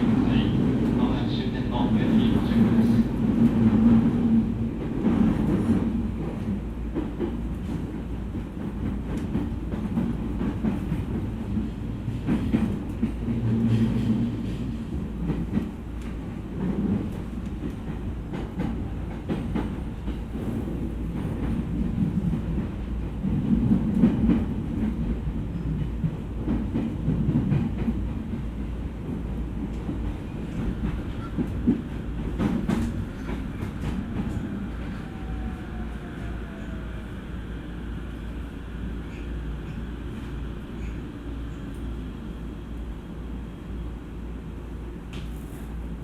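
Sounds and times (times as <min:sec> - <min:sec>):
faint falling train whine: 0:30.3 - 0:39.2.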